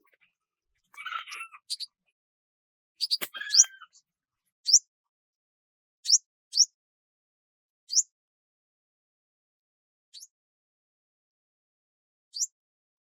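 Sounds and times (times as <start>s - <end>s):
lower bird calls: 1.0s - 1.9s, 3.0s - 4.0s
bird chirping: 1.0s - 2.0s, 3.0s - 3.9s.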